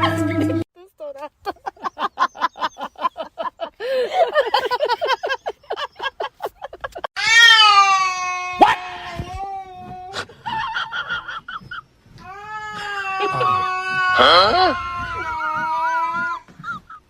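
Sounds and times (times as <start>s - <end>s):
cat yowling: 7.2s - 9.9s.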